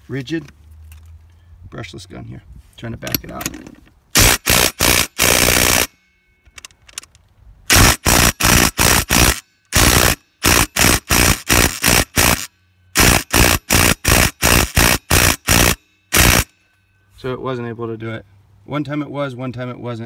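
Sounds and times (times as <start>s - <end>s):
impact driver hammering lug nut: 4.2s - 5.9s, 7.7s - 16.5s.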